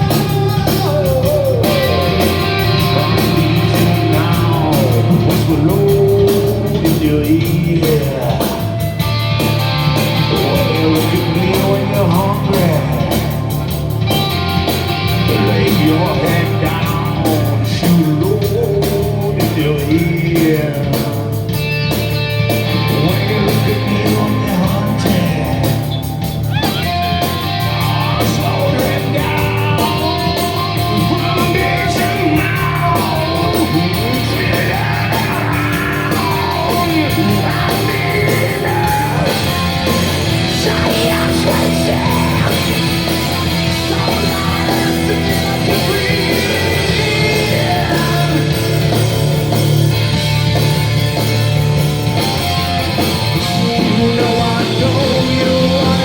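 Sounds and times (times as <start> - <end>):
person singing and shouting: 0.0 - 8.9, 10.0 - 13.5, 15.1 - 21.3, 22.7 - 49.2, 53.0 - 56.0
electric guitar: 0.0 - 56.0
live rock band playing: 0.0 - 56.0.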